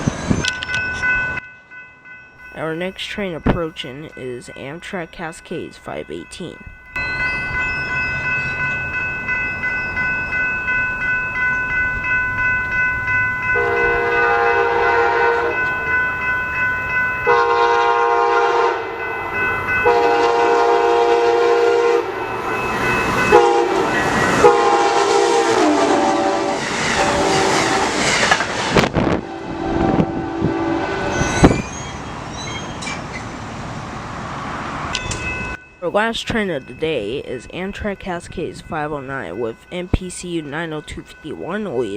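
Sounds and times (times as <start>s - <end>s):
crossing bell ringing: 0.0s - 33.2s, 34.8s - 41.9s
train horn blasts: 13.6s - 15.8s, 17.2s - 19.0s, 19.8s - 22.3s, 23.2s - 27.9s, 28.8s - 31.2s
train wheel clatter: 26.1s - 29.2s.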